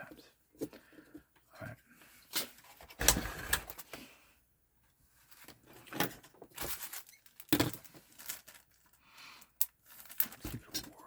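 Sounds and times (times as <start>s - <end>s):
console parts clicking and knocking: 2.8s - 3.8s.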